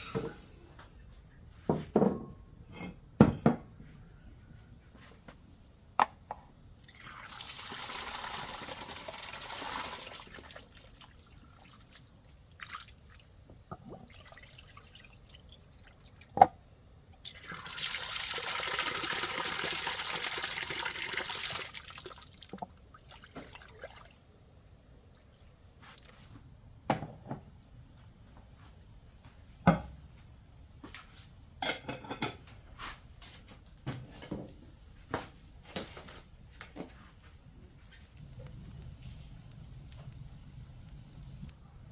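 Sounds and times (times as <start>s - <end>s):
water pouring: 6.8s - 13.3s, 14.0s - 16.3s, 17.3s - 24.2s.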